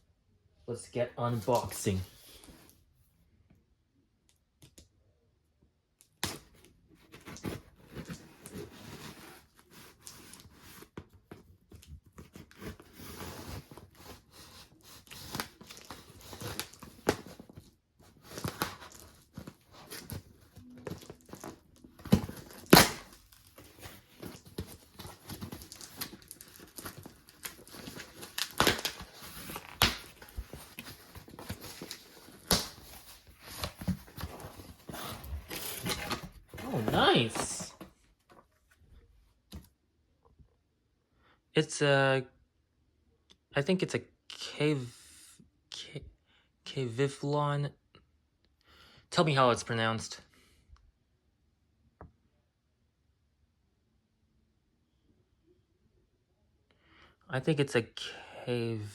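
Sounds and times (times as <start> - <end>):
cardboard packaging tearing: 12.2 - 37.4.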